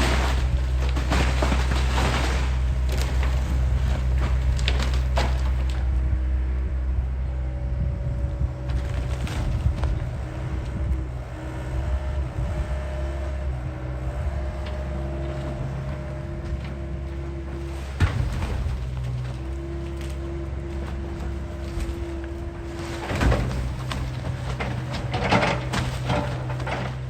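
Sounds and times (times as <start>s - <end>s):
wood splintering and cracking: 0.0s - 5.9s, 8.6s - 10.7s, 14.3s - 27.0s
excavator engine drone: 0.0s - 27.0s.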